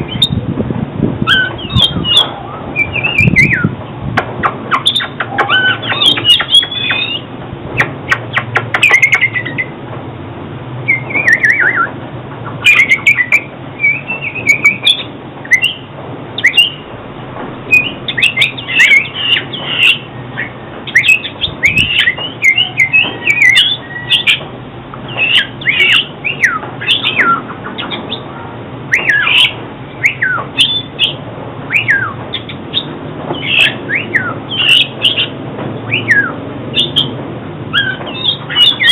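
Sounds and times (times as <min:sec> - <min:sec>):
bird singing whistled phrases: 0:01.2 - 0:03.7, 0:04.7 - 0:09.7, 0:10.9 - 0:11.9, 0:12.6 - 0:16.8, 0:17.7 - 0:24.4, 0:25.1 - 0:28.2, 0:28.9 - 0:35.3, 0:35.9 - 0:37.1, 0:37.7 - 0:38.9
bird sharp clicks: 0:04.2 - 0:07.2, 0:07.8 - 0:09.7.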